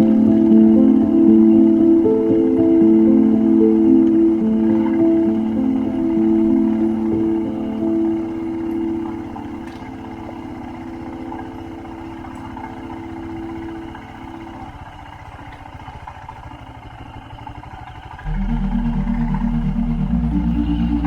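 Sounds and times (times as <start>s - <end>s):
music: 0.0s - 11.6s, 18.3s - 21.0s
motorcycle engine running: 0.0s - 21.0s.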